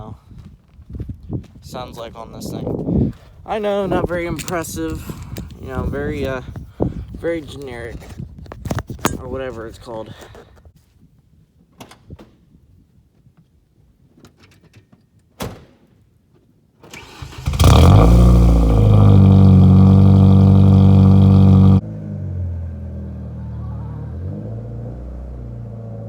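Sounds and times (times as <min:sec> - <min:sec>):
car engine cranking: 0:16.9 - 0:21.8
car engine idling: 0:17.5 - 0:21.8.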